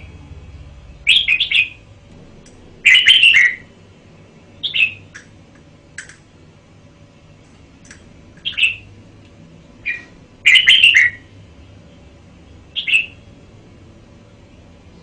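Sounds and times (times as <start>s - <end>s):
bird singing whistled phrases: 2.8s - 3.6s, 4.6s - 5.0s, 8.4s - 8.8s, 9.8s - 11.3s, 12.8s - 13.2s.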